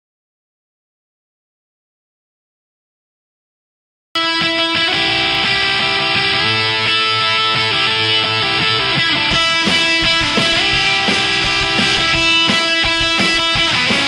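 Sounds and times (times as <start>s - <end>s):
guitar background music: 4.2s - 14.0s.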